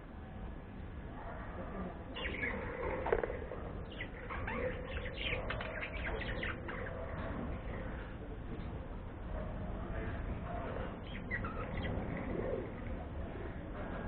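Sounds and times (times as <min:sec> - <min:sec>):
bird chirping: 0:02.1 - 0:08.0, 0:10.8 - 0:12.7.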